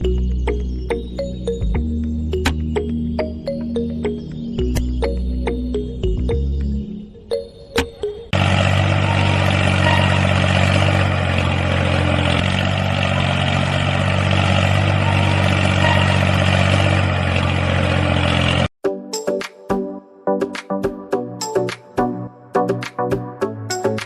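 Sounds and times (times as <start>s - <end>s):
engine humming: 7.8s - 18.7s.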